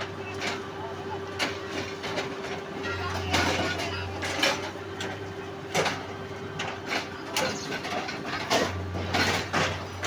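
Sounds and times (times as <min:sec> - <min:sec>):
track machinery humming: 0:00.0 - 0:10.0.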